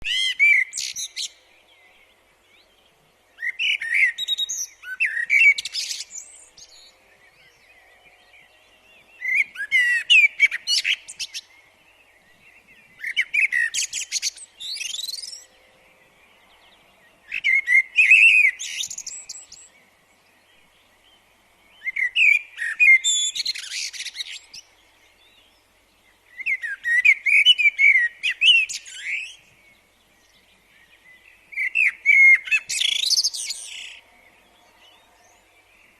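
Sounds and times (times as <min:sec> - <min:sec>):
songbird warbling: 0:21.8 - 0:34.2.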